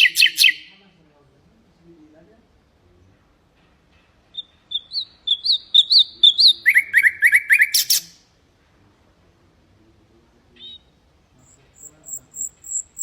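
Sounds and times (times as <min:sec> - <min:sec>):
nightingale singing: 0:00.0 - 0:00.8, 0:04.2 - 0:08.3, 0:10.5 - 0:13.0.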